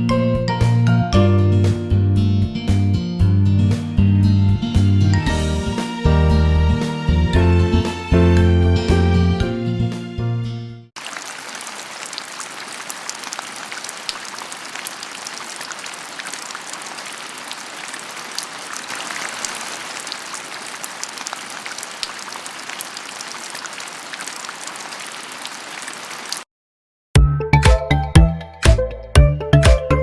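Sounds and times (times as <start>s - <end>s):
steady rain falling: 11.0s - 26.5s.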